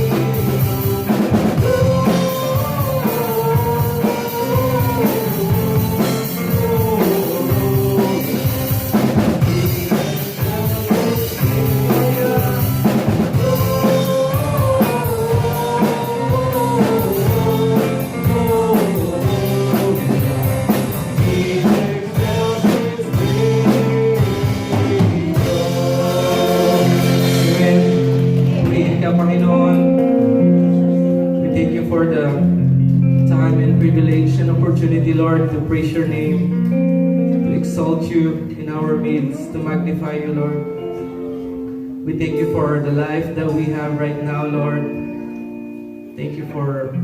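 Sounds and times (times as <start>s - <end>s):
drum kit: 0.0s - 31.7s
worship band music: 0.0s - 47.0s.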